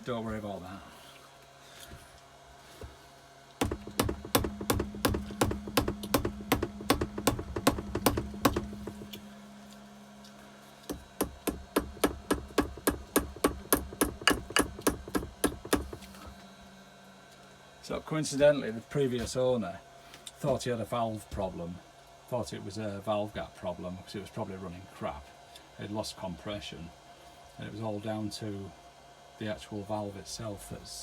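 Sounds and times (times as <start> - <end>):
power tool rapid clicking: 3.6 - 9.2, 10.9 - 16.2.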